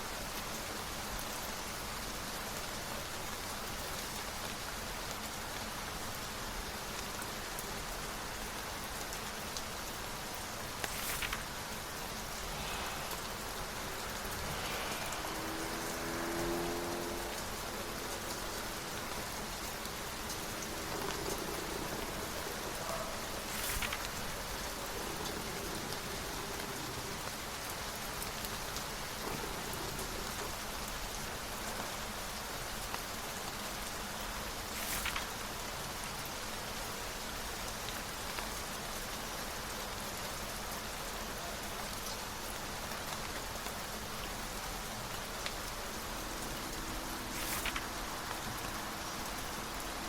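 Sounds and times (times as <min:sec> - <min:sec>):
rain falling: 0:00.0 - 0:50.0.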